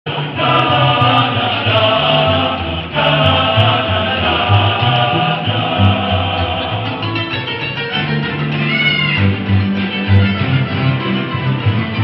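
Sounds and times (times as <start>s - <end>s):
choir singing: 0.1s - 7.7s
low bass line: 0.3s - 12.0s.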